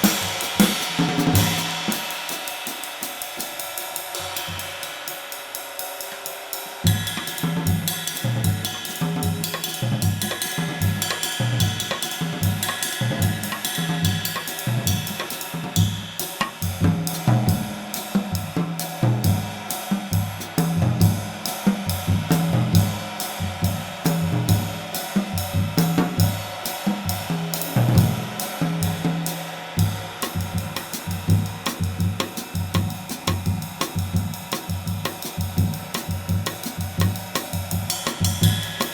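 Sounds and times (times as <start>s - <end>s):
kick and snare drums: 0.0s - 4.8s, 6.8s - 29.2s, 29.8s - 38.9s.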